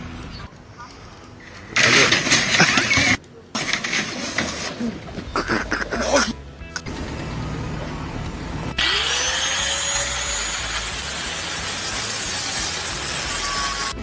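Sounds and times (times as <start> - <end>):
loud steady hiss: 5.6 - 14.0
power tool motor spinning up: 8.8 - 14.0.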